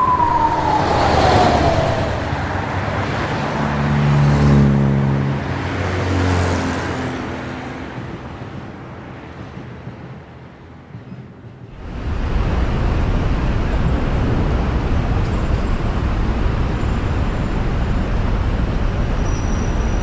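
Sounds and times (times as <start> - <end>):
siren wailing: 0.0 - 3.6
vehicle passing: 0.0 - 6.7
traffic noise: 0.0 - 20.0.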